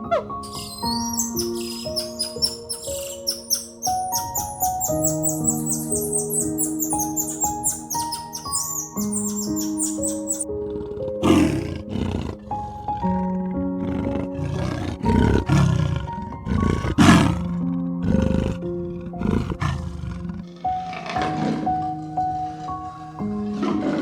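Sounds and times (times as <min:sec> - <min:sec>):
soft instrumental music: 0:00.0 - 0:24.0
large animal calling: 0:00.1 - 0:10.5.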